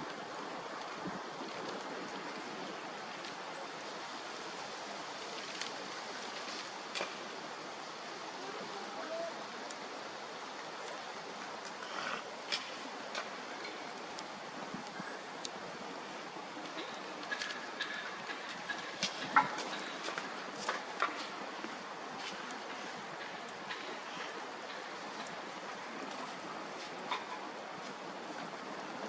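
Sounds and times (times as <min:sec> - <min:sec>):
bonfire hissing and rushing: 0:00.0 - 0:29.0
wood crackling and popping: 0:05.2 - 0:07.5, 0:09.5 - 0:15.6, 0:16.5 - 0:29.0.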